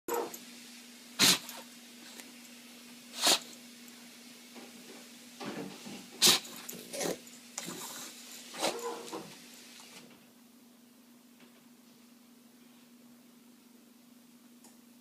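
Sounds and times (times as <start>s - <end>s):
dog sneezing: 1.2s - 1.6s, 3.1s - 3.6s, 6.2s - 9.2s.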